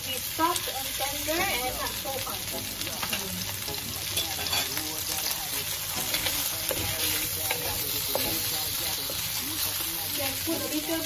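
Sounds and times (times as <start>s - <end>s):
meat sizzling in a pan: 0.0s - 11.0s
wooden spatula scraping a pan: 5.2s - 9.8s.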